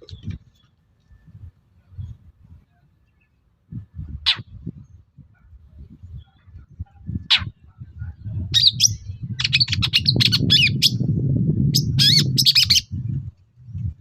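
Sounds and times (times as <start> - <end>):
harsh bird chattering: 4.2 - 4.5, 7.2 - 7.6, 8.6 - 11.0, 11.8 - 12.9.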